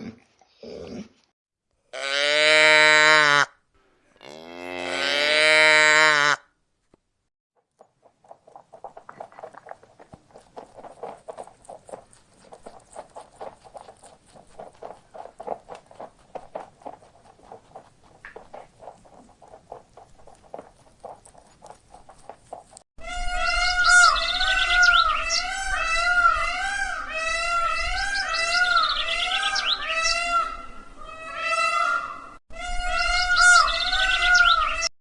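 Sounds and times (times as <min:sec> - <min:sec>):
cow mooing: 0:02.0 - 0:06.4
rapid pattering clicks and taps: 0:07.6 - 0:22.8.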